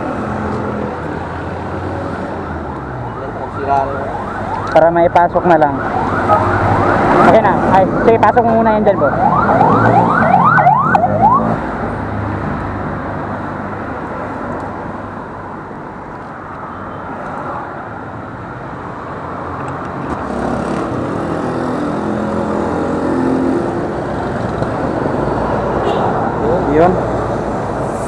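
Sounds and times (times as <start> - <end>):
passing vehicles rushing: 0.0 - 28.0
siren whooping: 2.2 - 11.7.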